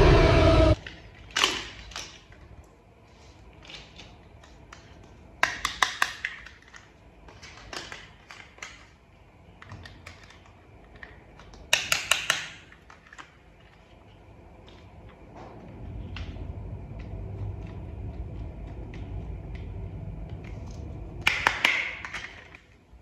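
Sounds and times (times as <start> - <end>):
plastic toy parts clicking: 0.8 - 2.4, 3.6 - 9.0, 9.6 - 13.8.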